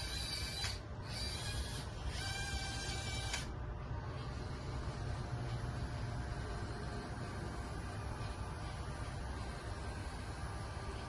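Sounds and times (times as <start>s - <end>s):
electric pump hum and whine: 0.0s - 11.0s.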